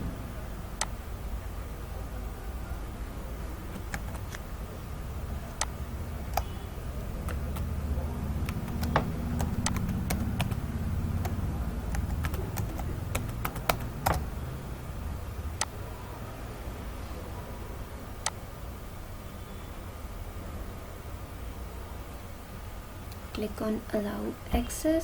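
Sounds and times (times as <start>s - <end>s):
steady low hum: 0.0s - 25.0s
computer keyboard keys clicking: 3.7s - 4.4s, 7.2s - 7.7s, 8.4s - 14.3s.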